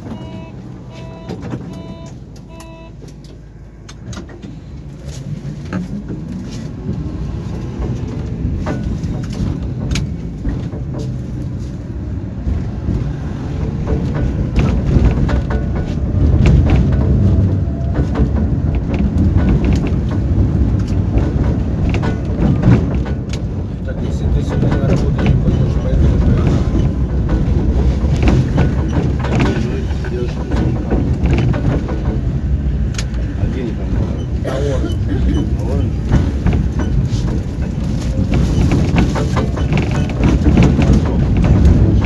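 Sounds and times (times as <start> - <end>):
two-tone door warning beeps: 0.0 - 3.2
rail clacks: 0.0 - 42.0
tram motor whine: 0.0 - 42.0
wheels rumbling on rail: 0.0 - 42.0.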